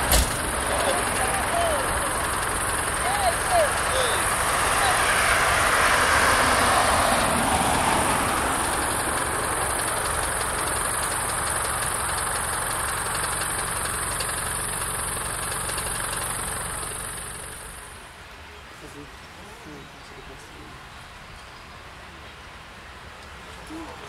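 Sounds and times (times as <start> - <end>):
diesel train rumbling on rails: 0.0 - 18.3.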